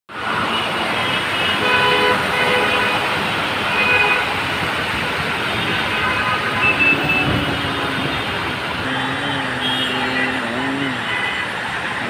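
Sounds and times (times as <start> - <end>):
wet-road traffic: 0.1 - 12.0
passing vehicle engine hum: 6.7 - 11.1.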